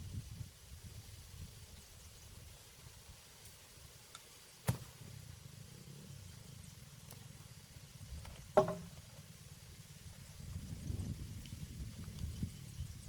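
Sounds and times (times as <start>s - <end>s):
sharp knocks: 8.6s - 9.0s.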